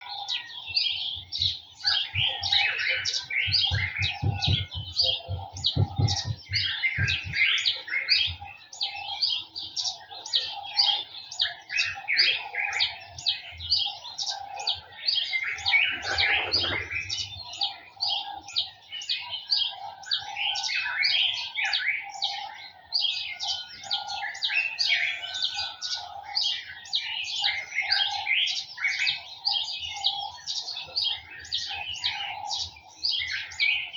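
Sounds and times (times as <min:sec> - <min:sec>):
low repeated bird call: 0:00.0 - 0:33.9
small birds chirping: 0:00.0 - 0:33.9
low thumps: 0:03.7 - 0:07.3.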